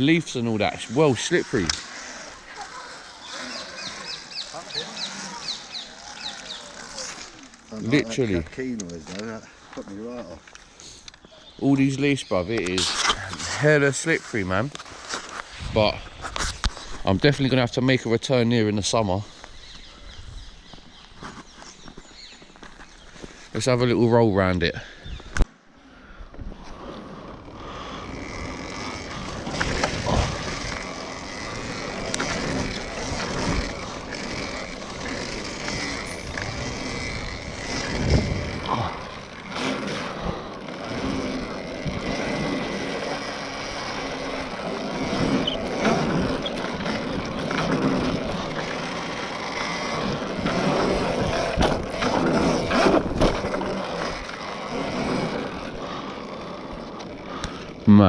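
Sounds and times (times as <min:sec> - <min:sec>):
electric dirt bike motor whine: 0:00.0 - 0:11.3, 0:26.3 - 0:58.0.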